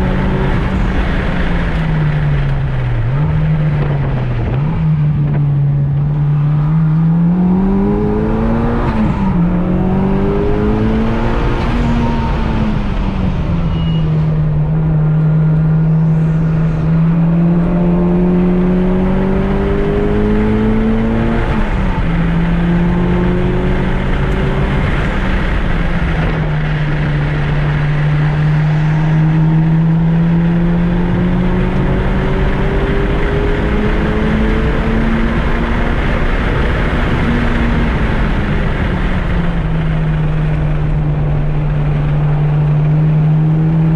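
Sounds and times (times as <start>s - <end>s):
car engine running hard: 0.0s - 43.9s.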